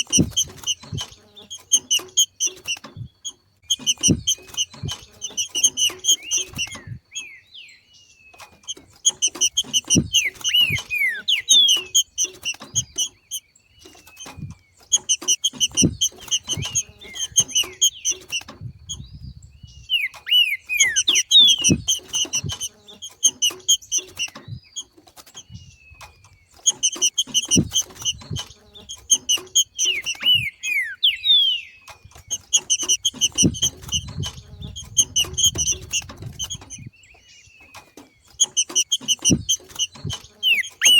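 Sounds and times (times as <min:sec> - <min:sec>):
bird chattering and whistling: 0:00.0 - 0:40.9
soft low thumps: 0:02.9 - 0:07.1, 0:08.8 - 0:10.9, 0:14.3 - 0:19.9, 0:32.0 - 0:37.0.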